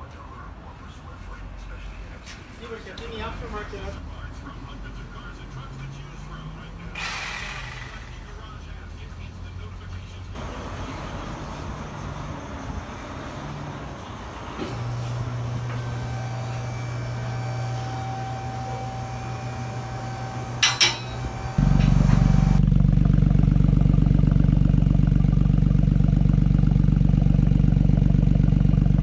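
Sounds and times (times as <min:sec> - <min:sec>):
car engine idling through exhaust: 0:04.0 - 0:29.0
steady low hum: 0:10.2 - 0:29.0.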